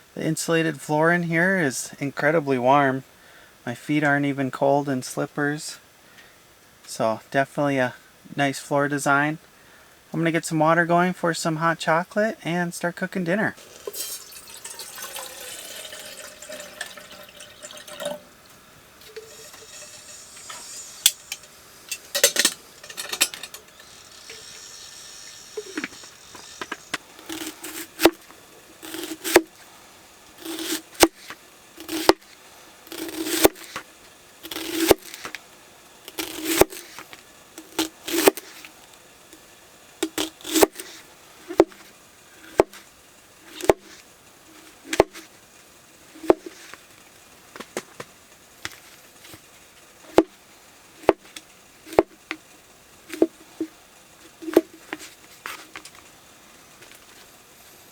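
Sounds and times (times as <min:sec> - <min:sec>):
water poured into a pot: 0:13.6 - 0:21.6
knife chopping on cutting board: 0:28.8 - 0:29.5, 0:30.4 - 0:32.2, 0:32.9 - 0:33.8, 0:41.5 - 0:41.8, 0:42.5 - 0:42.8, 0:43.5 - 0:44.0, 0:46.2 - 0:46.6, 0:51.9 - 0:52.2.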